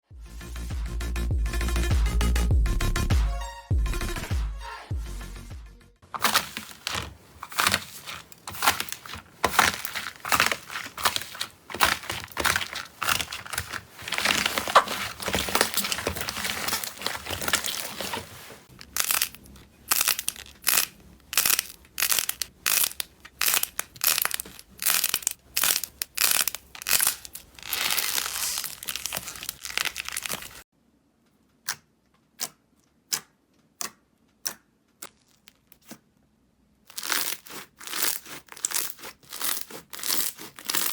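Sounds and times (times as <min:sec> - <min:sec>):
slime crackling and snapping: 0:06.2 - 0:30.6, 0:36.9 - 0:40.9.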